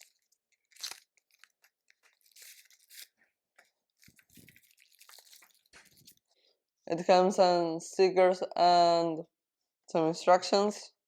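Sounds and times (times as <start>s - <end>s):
packaging rustling: 0.0s - 6.2s.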